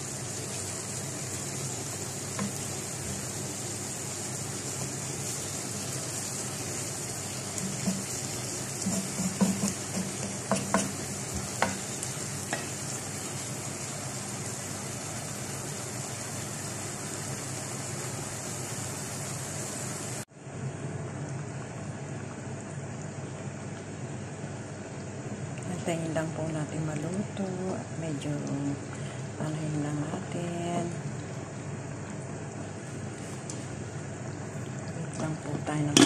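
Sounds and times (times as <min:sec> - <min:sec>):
chicken sizzling in oil: 0:00.0 - 0:20.3.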